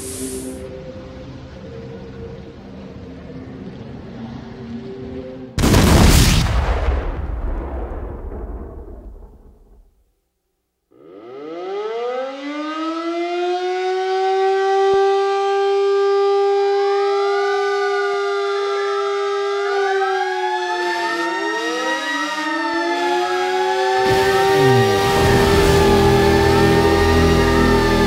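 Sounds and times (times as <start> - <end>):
air-raid siren wailing: 0.0 - 5.5, 10.9 - 28.0
siren tones rising and falling: 10.9 - 28.0.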